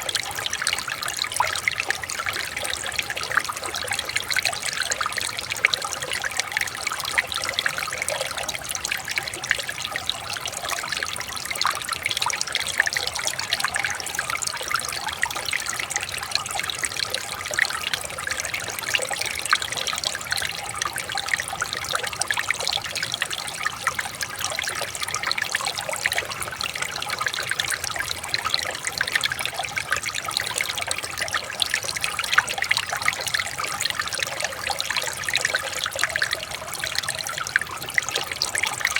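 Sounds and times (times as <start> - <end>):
river water trickling over stones: 0.0 - 38.9.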